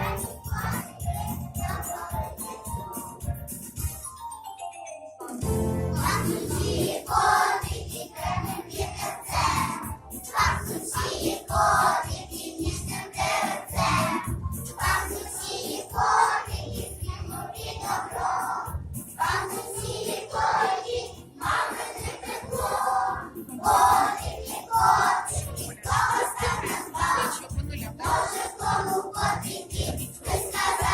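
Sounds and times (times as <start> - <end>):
children singing together: 0.0 - 2.6, 5.8 - 30.9
instrumental accompaniment: 0.0 - 11.4
musical accompaniment: 0.0 - 30.9.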